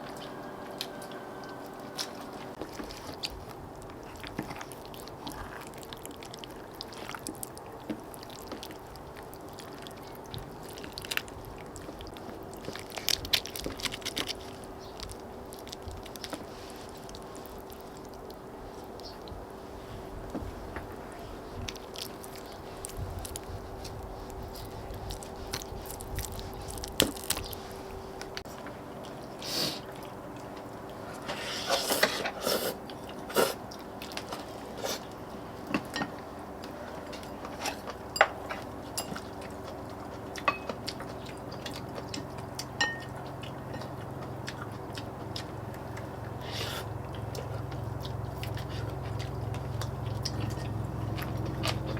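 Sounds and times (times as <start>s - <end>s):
faint steady hum: 0.0s - 51.9s
people chewing and biting: 0.0s - 51.9s.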